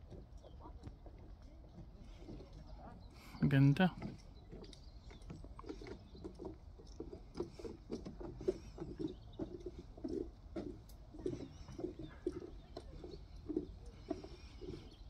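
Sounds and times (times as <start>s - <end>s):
birds calling: 11.2s - 15.0s.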